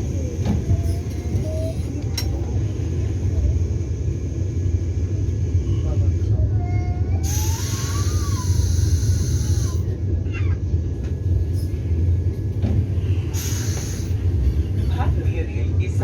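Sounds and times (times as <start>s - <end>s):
train carriage rumble: 0.0s - 16.0s
air hiss: 13.3s - 14.2s.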